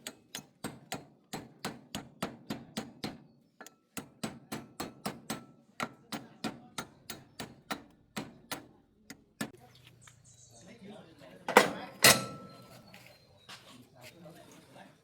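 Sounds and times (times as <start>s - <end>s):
hammering: 0.0s - 9.6s.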